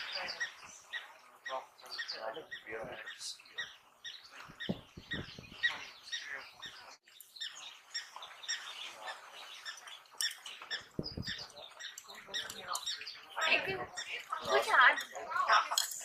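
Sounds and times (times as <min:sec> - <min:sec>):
wild dogs twittering: 0:00.0 - 0:15.6
low bumps: 0:04.4 - 0:06.0, 0:10.8 - 0:11.5.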